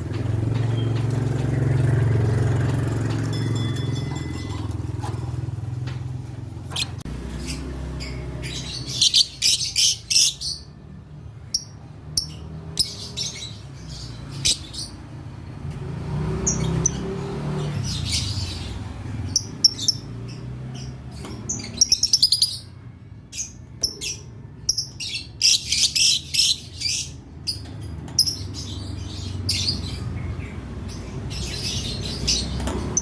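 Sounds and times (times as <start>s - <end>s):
passing vehicle rumble: 0.0s - 33.0s
lovebirds shrill chirps: 6.7s - 10.7s, 20.8s - 30.1s.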